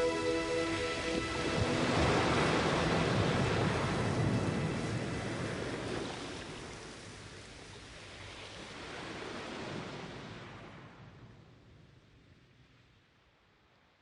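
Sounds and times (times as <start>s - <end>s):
rushing water: 0.0s - 10.0s.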